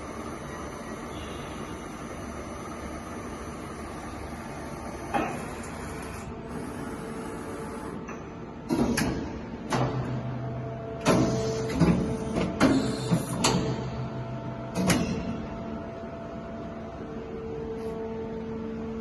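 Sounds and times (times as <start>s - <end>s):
milling machine hum: 0.0s - 8.1s.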